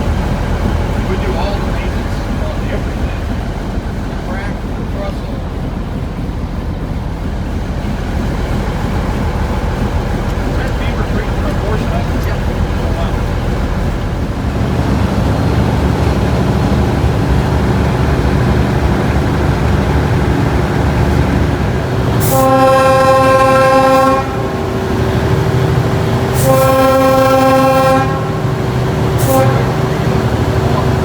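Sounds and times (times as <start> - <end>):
diesel locomotive engine running: 0.0 - 31.0
locomotive chime air horn: 22.2 - 31.0.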